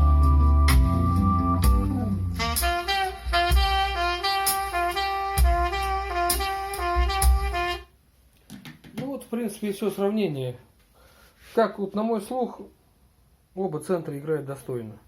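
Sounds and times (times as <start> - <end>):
saxophone over bass beat: 0.0 - 7.9.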